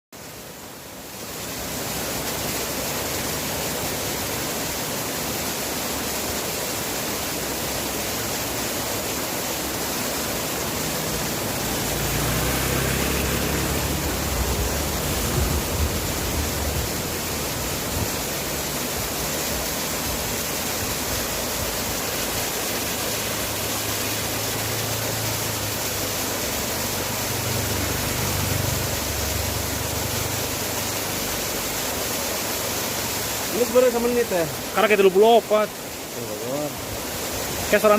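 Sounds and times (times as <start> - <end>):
waterfall pouring: 0.2 - 37.9
low rumble: 12.8 - 18.6.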